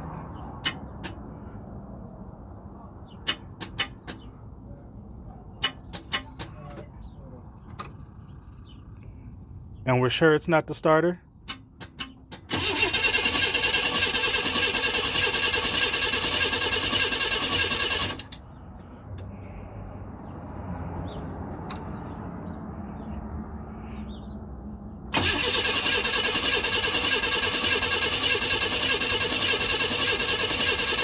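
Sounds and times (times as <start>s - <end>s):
starter cranking engine: 12.4s - 18.4s, 25.1s - 31.0s.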